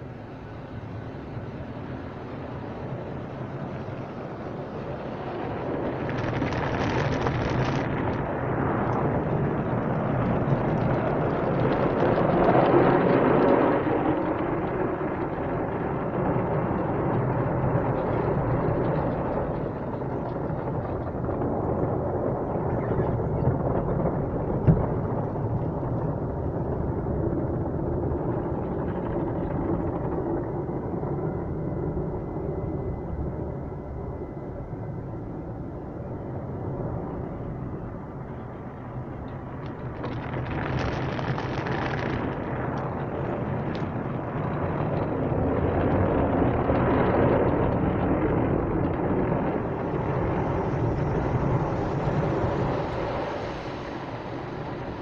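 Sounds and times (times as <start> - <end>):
car wash water spray and machinery: 50.0 - 55.0.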